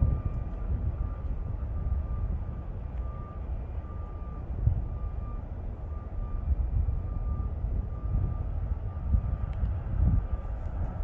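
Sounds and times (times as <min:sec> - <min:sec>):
distant freight train rumble: 0:00.0 - 0:11.0
faint high beep: 0:03.0 - 0:09.2.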